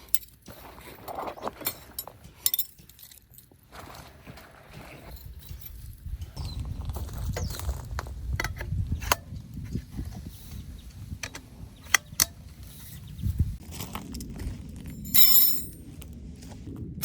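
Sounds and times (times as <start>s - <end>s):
gear clicks and knocks: 0.0s - 10.2s
low rumble: 5.2s - 17.0s.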